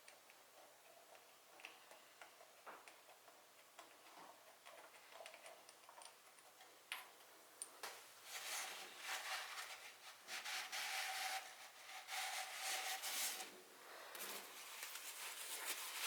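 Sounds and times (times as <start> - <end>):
scraping strokes by hand: 8.2 - 13.5.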